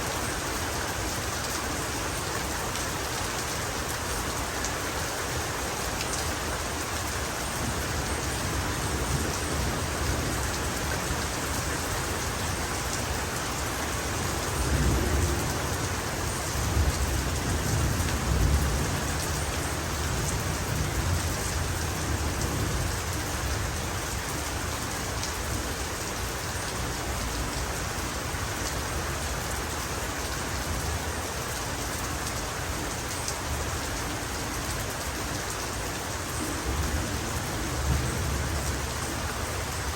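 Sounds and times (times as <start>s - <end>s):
heavy rain: 0.0s - 39.9s
low rumble of thunder: 14.1s - 24.0s, 36.5s - 39.8s.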